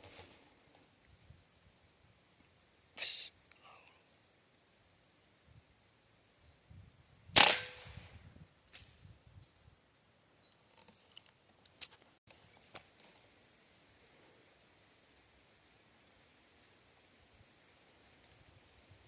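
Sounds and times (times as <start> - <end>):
air rifle shot: 7.4 - 8.1.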